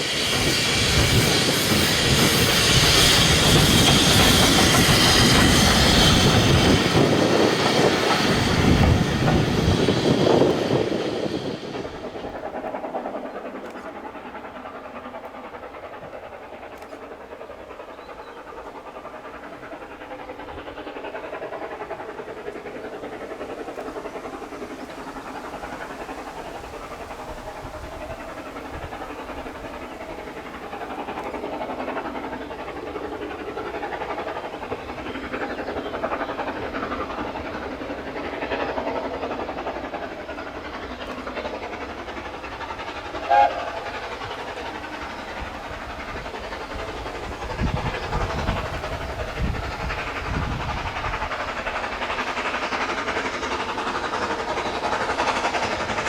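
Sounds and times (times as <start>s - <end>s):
steam train rumble and rail noise: 0.0s - 56.0s
train whistle blast: 43.2s - 44.0s.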